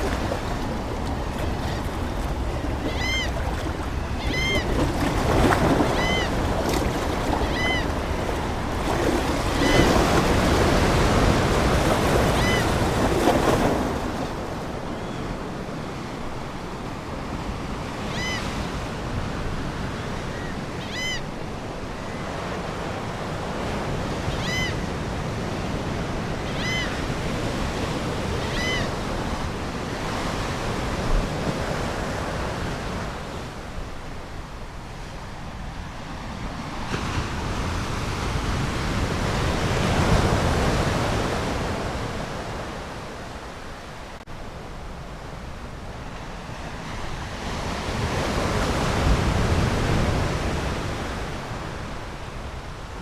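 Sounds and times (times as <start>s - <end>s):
seagulls calling: 0.0s - 15.4s
ocean waves washing on shore: 0.0s - 53.0s.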